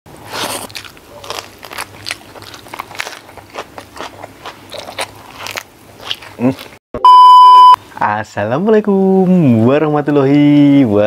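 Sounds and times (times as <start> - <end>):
wet chewing and crisp crunches: 0.2 - 6.8.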